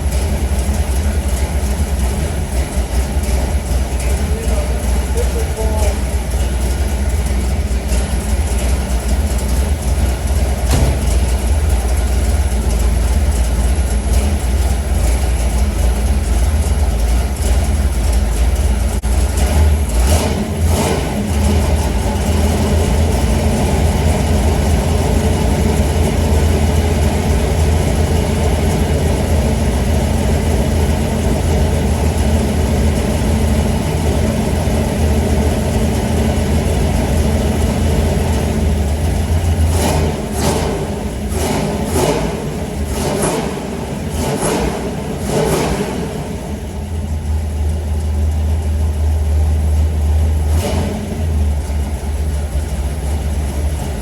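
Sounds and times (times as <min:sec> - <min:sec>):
engine idling: 0:00.0 - 0:54.0
brief engine knocks: 0:10.6 - 0:11.3.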